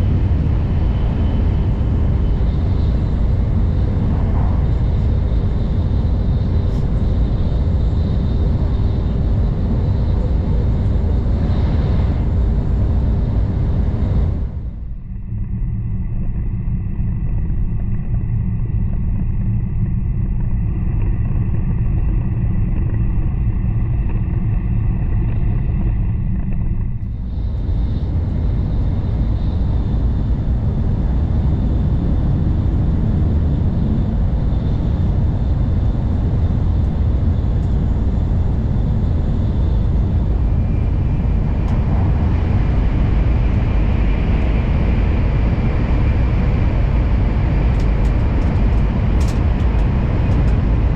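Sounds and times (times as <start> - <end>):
train running noise from inside: 0.0 - 15.1, 26.9 - 50.9.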